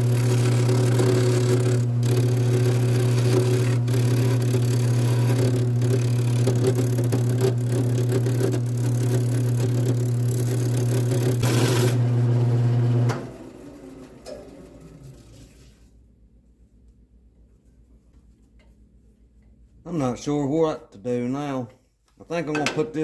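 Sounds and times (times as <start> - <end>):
turning tool scraping wood: 0.0 - 12.0
wood lathe motor hum: 0.0 - 15.1.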